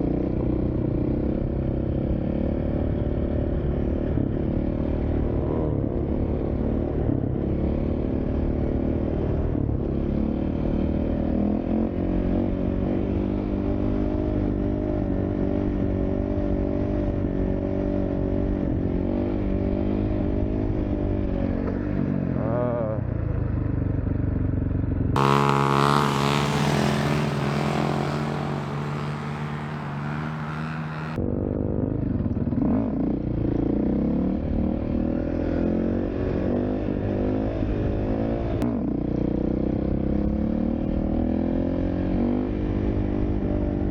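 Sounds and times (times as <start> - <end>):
dirt bike engine revving: 25.2 - 31.2.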